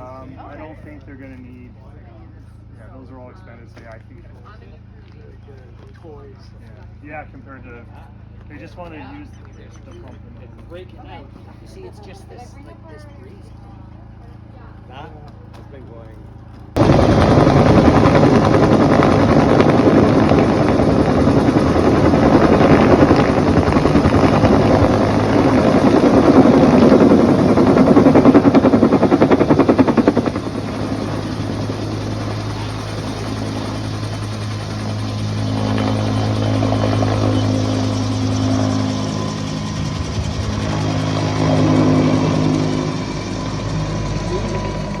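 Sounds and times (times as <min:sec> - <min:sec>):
helicopter engine and rotor: 0:16.5 - 0:45.0.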